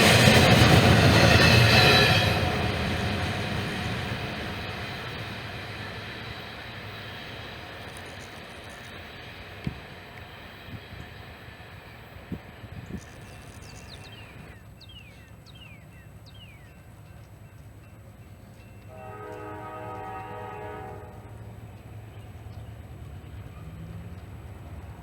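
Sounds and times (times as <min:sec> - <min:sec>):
locomotive horn blast: 0:18.9 - 0:21.5.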